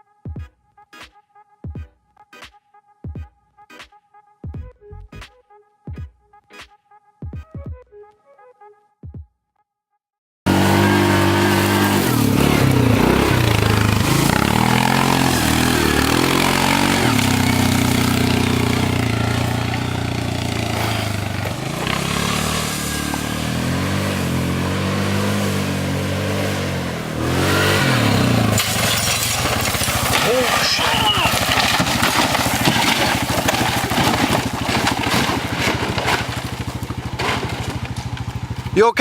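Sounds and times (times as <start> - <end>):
small engine revving: 10.5 - 38.9.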